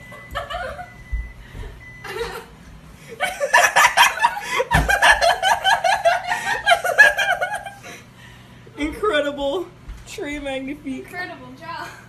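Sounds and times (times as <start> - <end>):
person laughing hard: 2.0 - 8.0.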